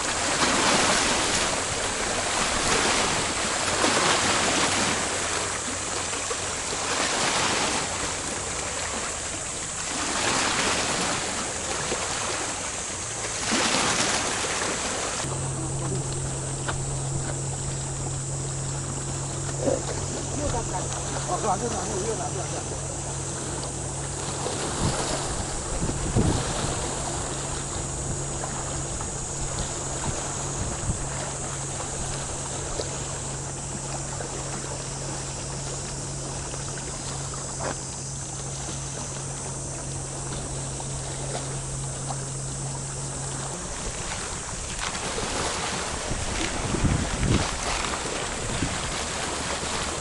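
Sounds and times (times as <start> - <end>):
low motor hum: 0.0 - 50.0
sea water washing along shore: 0.0 - 50.0
wind buffeting the microphone: 15.2 - 33.0, 43.4 - 50.0.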